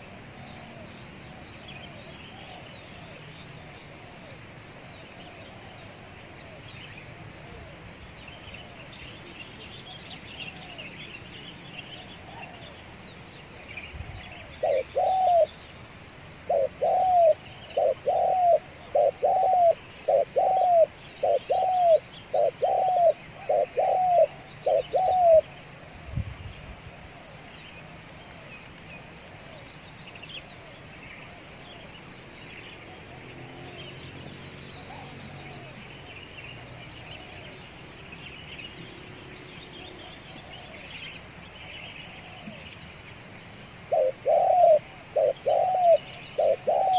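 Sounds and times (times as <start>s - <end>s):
dove cooing: 14.0s - 15.6s, 16.5s - 25.6s, 34.8s - 36.0s, 39.8s - 41.0s, 42.1s - 42.7s, 43.8s - 46.9s.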